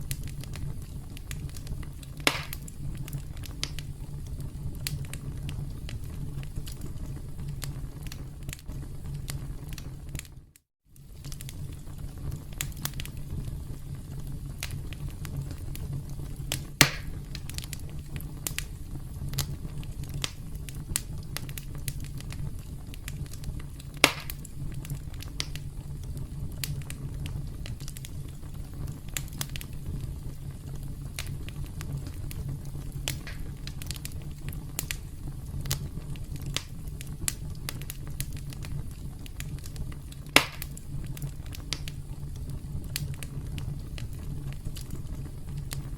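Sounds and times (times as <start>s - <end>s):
campfire crackling and popping: 0.0s - 45.9s.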